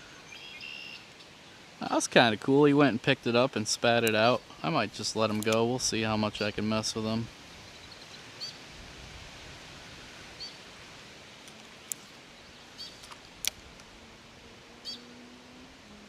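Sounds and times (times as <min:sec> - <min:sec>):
bird chirping: 0:00.3 - 0:01.1, 0:12.3 - 0:13.2, 0:14.8 - 0:15.3
sharp clicks: 0:04.0 - 0:04.3, 0:05.2 - 0:05.7.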